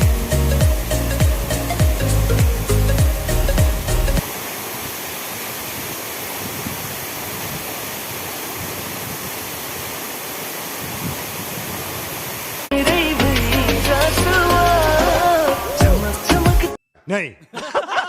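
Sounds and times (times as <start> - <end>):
music with bass line and melody: 0.0 - 4.2, 12.7 - 16.8
waterfall rushing: 0.0 - 16.8.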